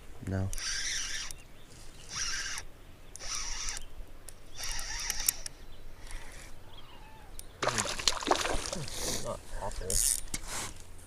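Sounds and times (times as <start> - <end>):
fishing reel winding: 0.6 - 1.4, 2.1 - 2.6, 3.2 - 3.8, 4.6 - 5.5.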